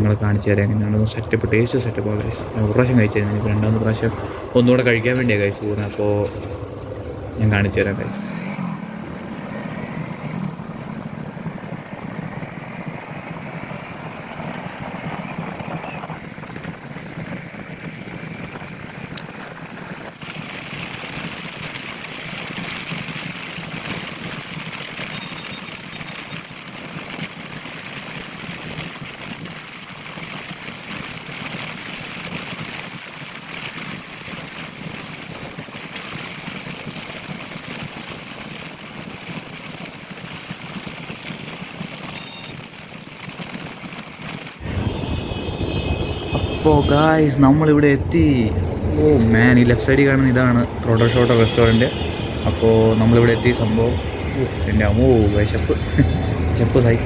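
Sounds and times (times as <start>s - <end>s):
motorcycle engine hum: 0.0s - 20.3s, 43.9s - 57.0s
wind and road noise: 0.0s - 57.0s
high evenly spaced ticking: 42.2s - 42.5s.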